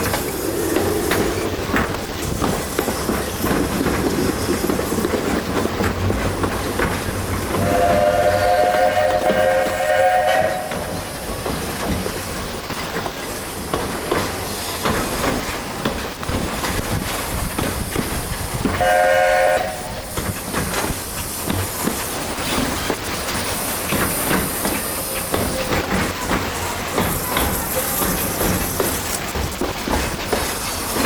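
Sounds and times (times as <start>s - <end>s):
steam hiss: 0.0s - 31.0s
steam train running: 0.0s - 31.0s
wheels clicking over rail joints: 0.0s - 31.0s
steam whistle blast: 7.6s - 10.9s, 18.8s - 20.1s.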